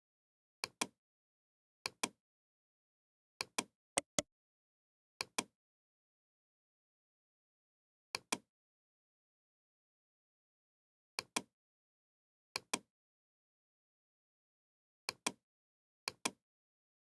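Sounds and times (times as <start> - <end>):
computer mouse double-clicking: 4.0 - 4.2.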